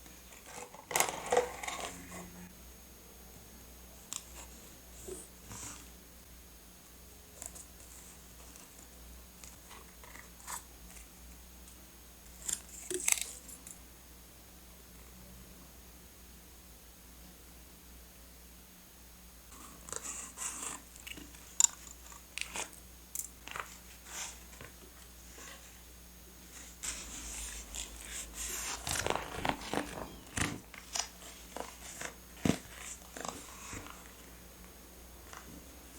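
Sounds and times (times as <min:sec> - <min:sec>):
crisp paper crinkles: 0:26.6 - 0:34.3.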